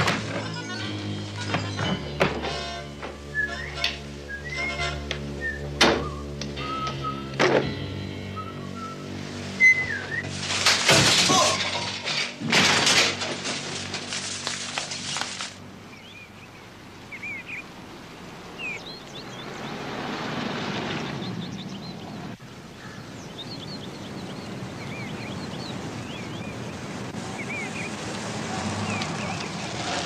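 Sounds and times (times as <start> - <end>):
outdoor background hiss: 0.0 - 30.0
small birds chirping: 15.8 - 20.2, 20.8 - 30.0.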